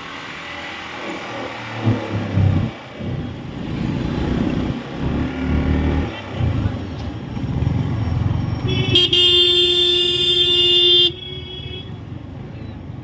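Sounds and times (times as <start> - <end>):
motorcycle road and engine rumble: 0.0 - 13.0
vehicle horn steady note: 8.7 - 11.9.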